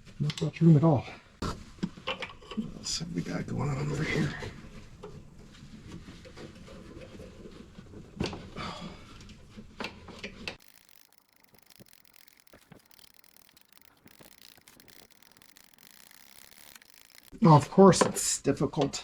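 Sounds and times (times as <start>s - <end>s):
hand tools clicking and scraping: 10.6s - 17.4s
sharp metallic clicks: 10.6s - 17.4s.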